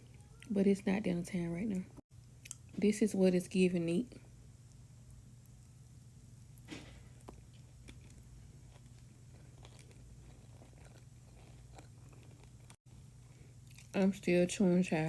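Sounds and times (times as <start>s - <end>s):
low steady hum: 0.0s - 15.0s
person chewing food: 6.6s - 14.0s.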